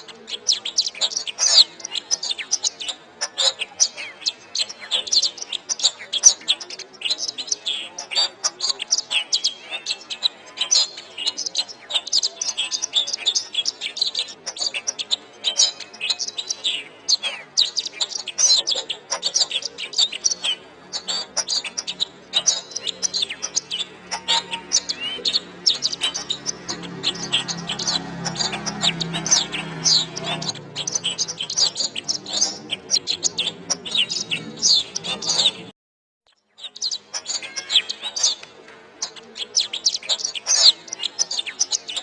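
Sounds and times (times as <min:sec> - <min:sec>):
canary singing: 0:00.0 - 0:35.7, 0:36.3 - 0:42.0.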